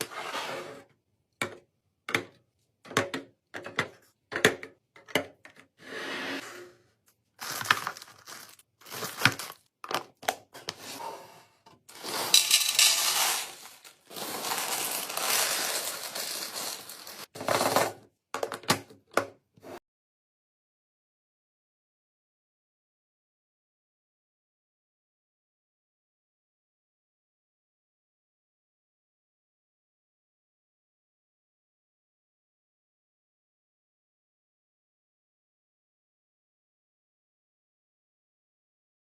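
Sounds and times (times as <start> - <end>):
packaging rustling: 7.4 - 10.2, 11.9 - 17.7
containers clicking and knocking: 11.9 - 17.8.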